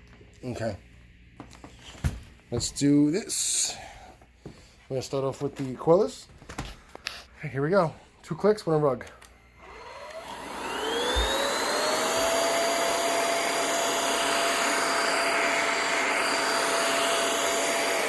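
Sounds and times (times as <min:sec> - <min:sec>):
vacuum cleaner motor whine: 0:09.4 - 0:18.0.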